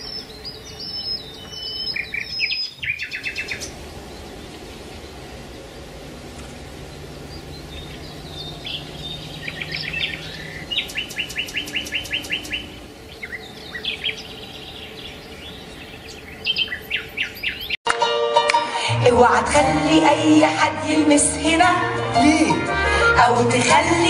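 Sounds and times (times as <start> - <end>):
birds chirping and trilling: 0.0 - 17.8
steady background hiss: 0.0 - 17.8.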